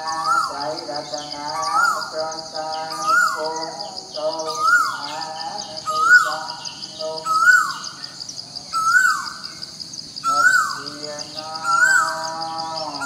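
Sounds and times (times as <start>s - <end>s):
bird whistled call: 4.4s - 5.0s, 8.8s - 9.5s, 10.2s - 10.9s, 11.6s - 13.0s.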